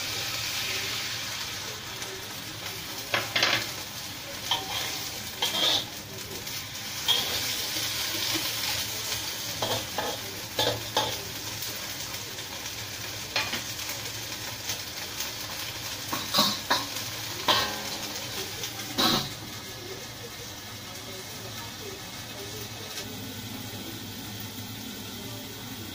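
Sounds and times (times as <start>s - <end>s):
beans sizzling in a wok: 0.0s - 25.9s
metal spatula scraping wok: 4.5s - 5.9s, 7.0s - 7.7s.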